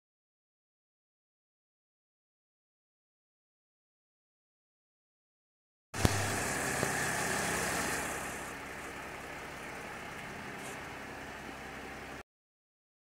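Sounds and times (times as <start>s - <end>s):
car engine idling: 6.0s - 12.2s.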